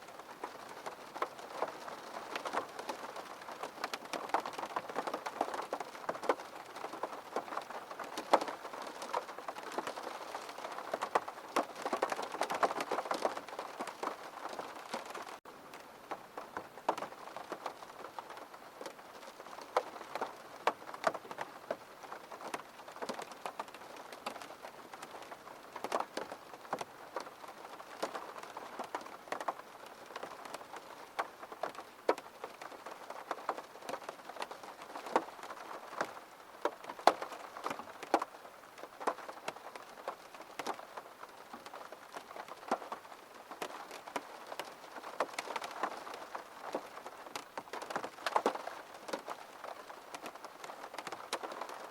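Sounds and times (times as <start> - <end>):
raindrops ticking on window: 0.2 - 51.9.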